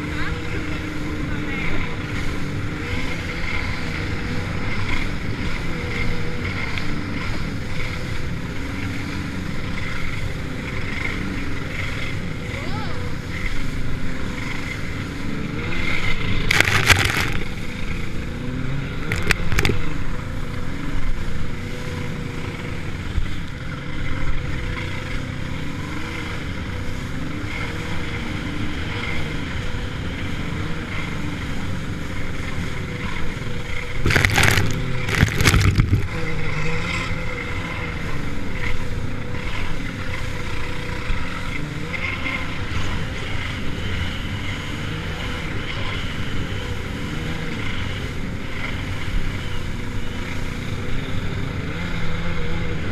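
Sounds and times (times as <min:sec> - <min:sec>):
jet ski engine running: 0:00.0 - 0:52.9
bursts of rushing noise: 0:16.1 - 0:18.1, 0:33.9 - 0:36.4.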